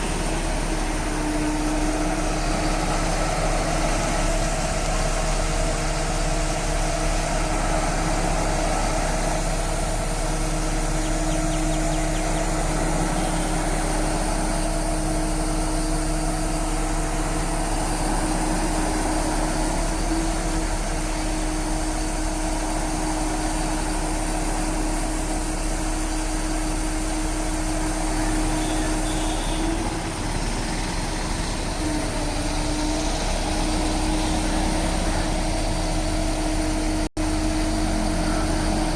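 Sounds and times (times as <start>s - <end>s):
crane engine running: 0.0s - 38.9s
steady whine: 0.0s - 38.9s.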